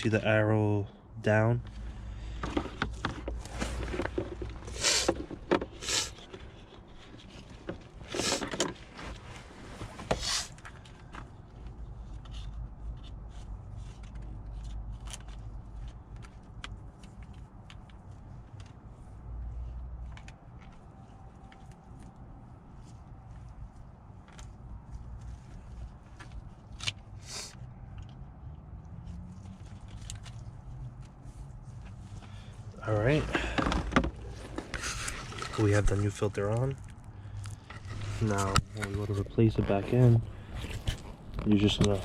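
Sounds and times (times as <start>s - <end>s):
plastic scraping and rustling: 2.0s - 28.0s, 29.1s - 42.0s.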